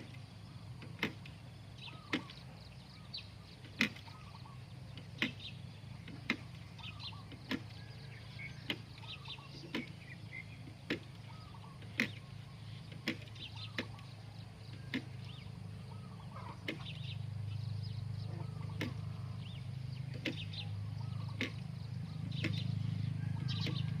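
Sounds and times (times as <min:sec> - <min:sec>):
birds chirping: 0:00.0 - 0:24.0
tool chopping into damp soil: 0:03.8 - 0:04.1.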